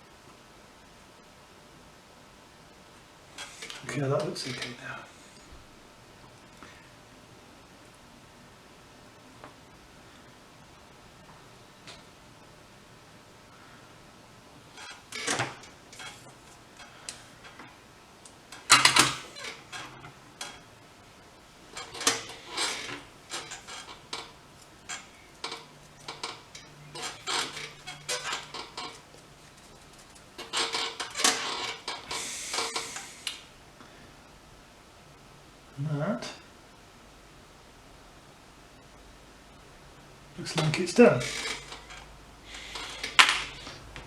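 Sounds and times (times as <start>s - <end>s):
short hiss: 32.1s - 33.5s.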